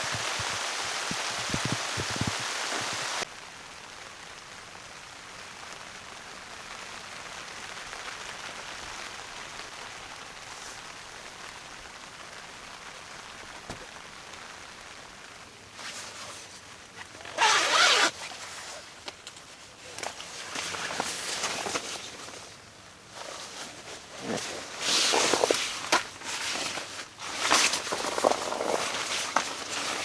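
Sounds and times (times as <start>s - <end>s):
heavy rain falling: 0.0s - 15.8s.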